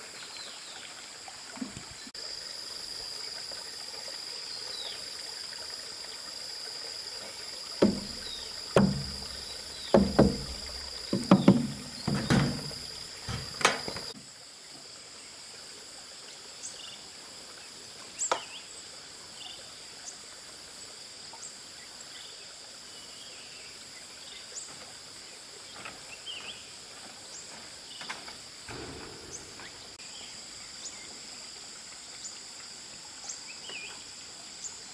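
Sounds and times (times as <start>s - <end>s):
insects trilling: 0.1s - 20.3s
sharp knocks: 7.8s - 14.1s.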